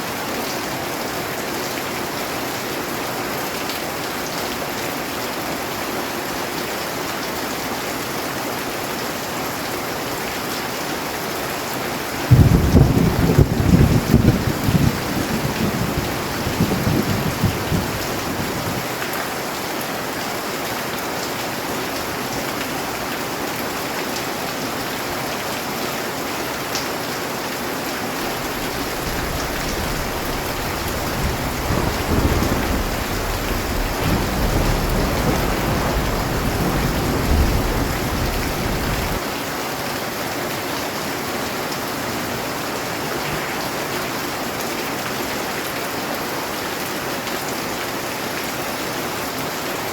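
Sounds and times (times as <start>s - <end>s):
heavy rain hissing: 12.2s - 18.8s, 28.0s - 39.2s
thunder rumbling: 12.2s - 18.8s, 28.2s - 39.2s.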